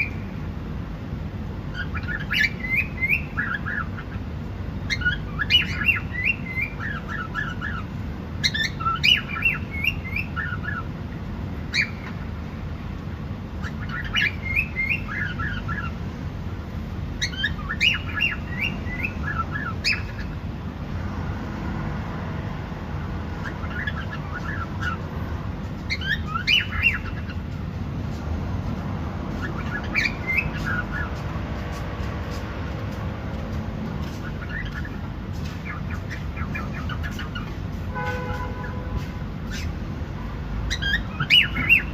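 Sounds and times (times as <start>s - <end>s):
cockatiel chirping and whistling: 1.7s - 4.1s, 4.9s - 7.8s, 8.4s - 10.8s, 11.7s - 12.2s, 13.6s - 15.9s, 17.2s - 20.4s, 23.4s - 25.0s, 25.8s - 27.4s, 29.4s - 31.1s, 34.3s - 37.5s, 39.5s - 39.7s, 40.7s - 41.9s.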